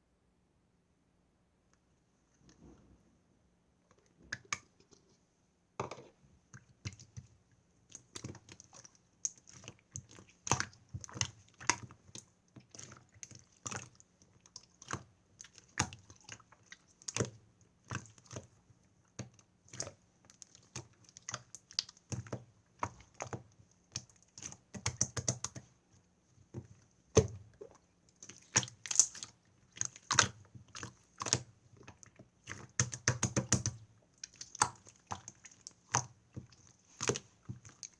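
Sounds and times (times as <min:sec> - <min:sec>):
slime squished by hand: 0:26.6 - 0:37.9.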